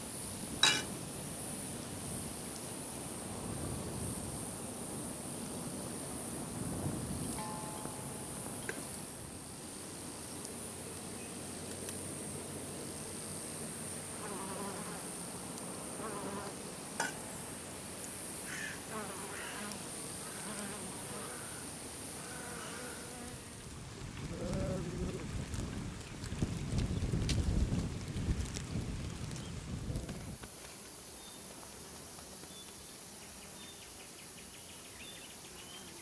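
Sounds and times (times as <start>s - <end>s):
steady high hiss: 0.0s - 23.7s
flying insect buzzing: 14.0s - 17.6s, 18.2s - 23.7s.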